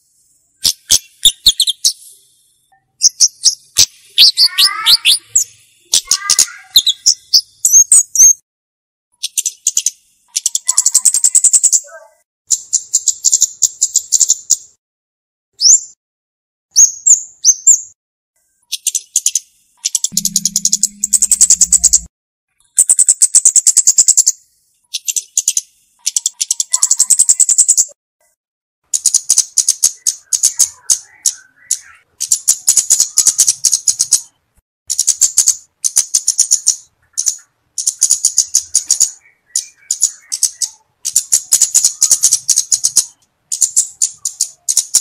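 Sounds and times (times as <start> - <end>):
bird high ticking notes: 0.6 - 2.0, 3.0 - 8.3, 19.8 - 22.1
bird calling high chips: 0.6 - 8.4, 9.2 - 11.9, 35.0 - 45.0
low steady hum: 20.1 - 22.1.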